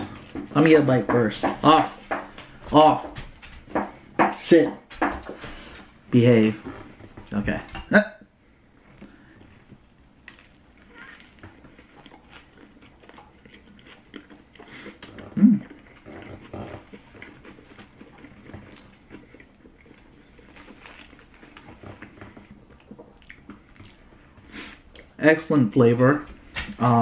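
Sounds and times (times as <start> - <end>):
person chewing: 8.9 - 25.8.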